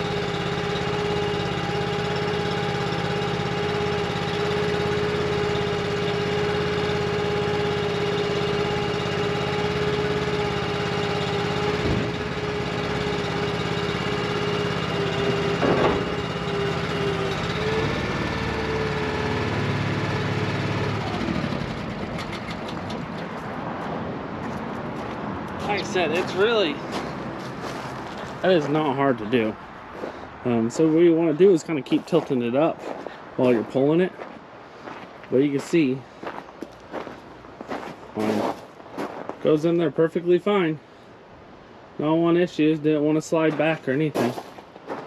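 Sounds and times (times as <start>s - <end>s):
hydraulic system whining: 0.0s - 23.4s.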